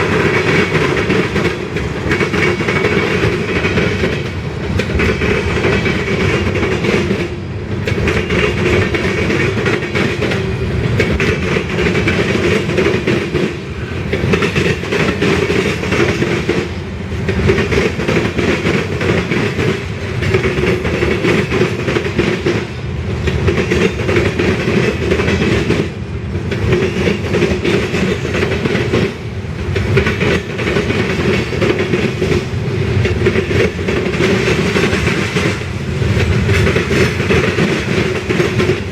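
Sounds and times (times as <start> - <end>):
train cars clacking over rails: 0.0 - 38.9.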